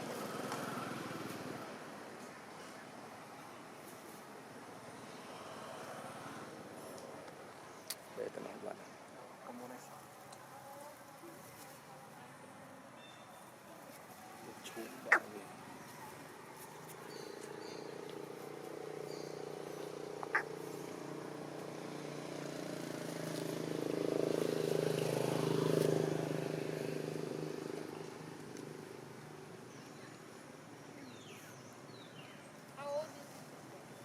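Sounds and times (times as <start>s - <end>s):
vehicle engine passing: 14.4s - 29.2s.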